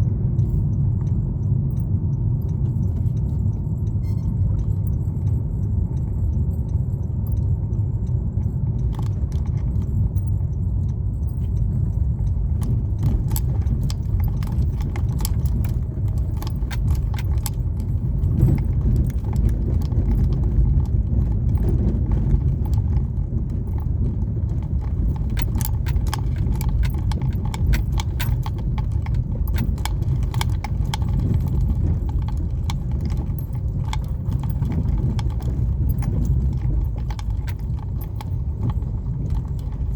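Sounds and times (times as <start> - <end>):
car road rumble: 0.0 - 39.9
loose object rattling: 11.8 - 39.9.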